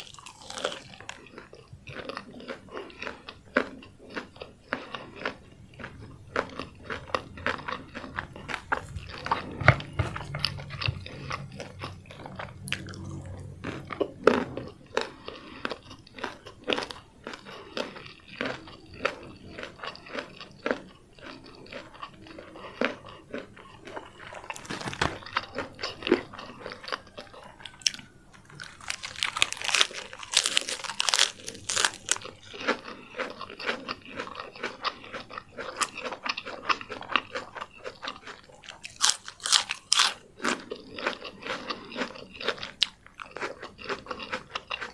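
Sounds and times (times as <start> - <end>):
chewing and crunching fried chicken: 0.0 - 44.9
crisp bite of lettuce: 24.3 - 32.9.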